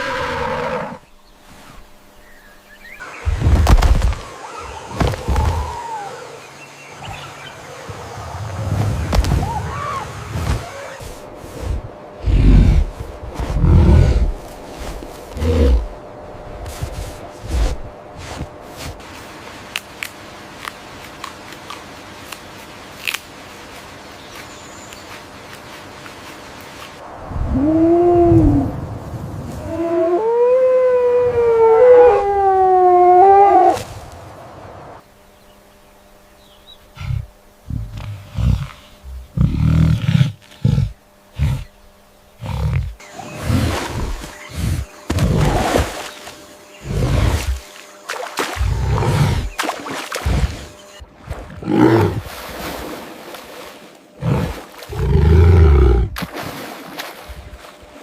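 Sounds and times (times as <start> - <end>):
animal howling: 4.2 - 7.2, 29.6 - 33.8
large wild animal roaring: 12.2 - 14.4, 48.6 - 49.5, 51.6 - 52.3, 54.2 - 56.2.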